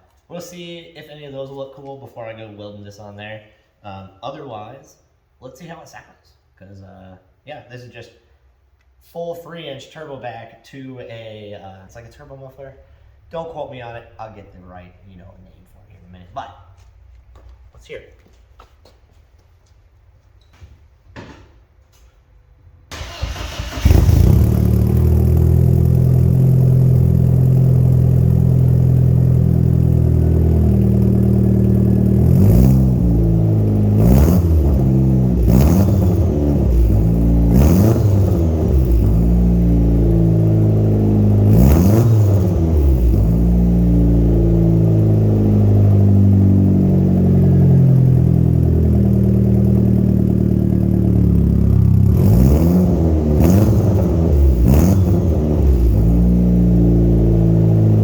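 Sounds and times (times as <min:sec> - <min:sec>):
car engine starting and idling: 0:22.7 - 0:58.0.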